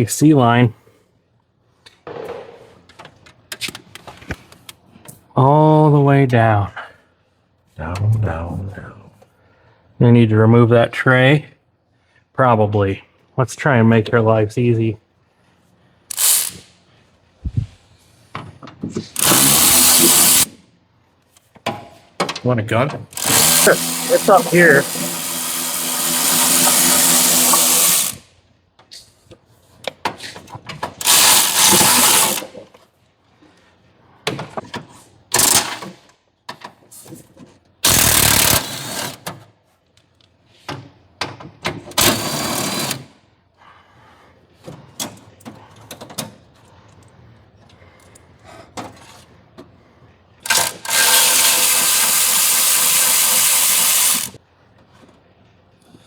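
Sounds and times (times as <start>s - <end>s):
impact gun running on bolts: 19.2s - 20.5s, 23.1s - 28.2s, 31.0s - 32.5s, 35.4s - 36.0s, 37.8s - 39.2s, 50.5s - 54.4s.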